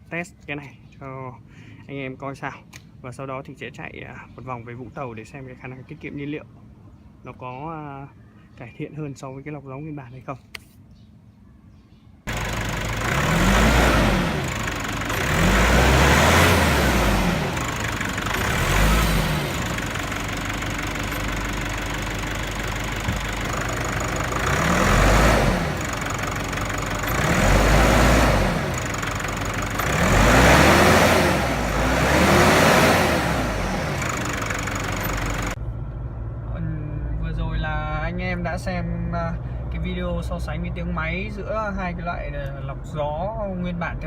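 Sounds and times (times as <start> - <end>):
diesel engine idling and revving: 12.3 - 44.0.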